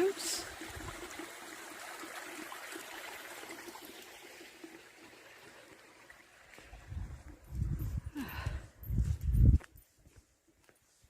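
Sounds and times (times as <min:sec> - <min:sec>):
water trickling and splashing: 0:00.0 - 0:08.2.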